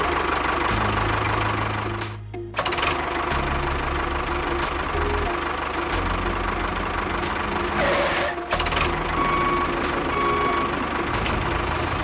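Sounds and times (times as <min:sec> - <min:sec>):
short beeps: 0:09.2 - 0:10.7.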